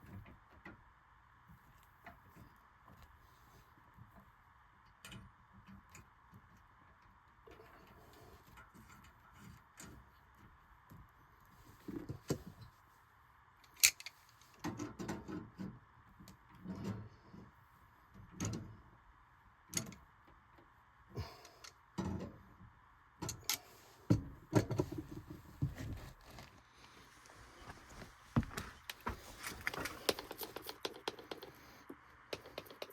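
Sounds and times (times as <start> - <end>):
scraping and rustling: 24.7 - 31.6
clicks and knocks of tools: 28.9 - 32.9.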